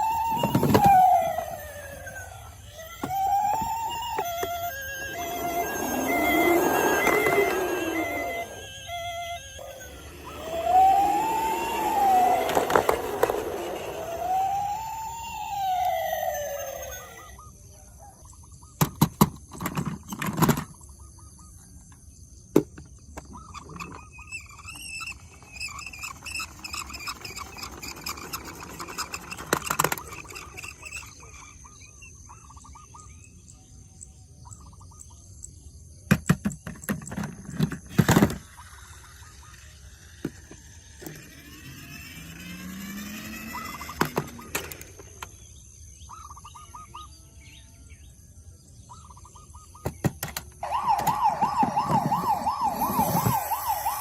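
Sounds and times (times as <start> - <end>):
toy siren wailing: 0.0 - 18.2, 23.6 - 31.9, 37.2 - 45.4, 50.2 - 54.0
faint warbling chirp: 0.0 - 18.8, 23.2 - 35.6, 38.0 - 54.0.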